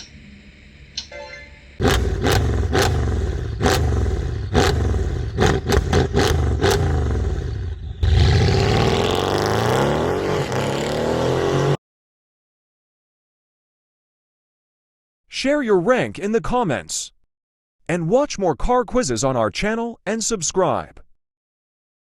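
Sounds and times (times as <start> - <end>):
car engine revving: 1.8 - 11.8.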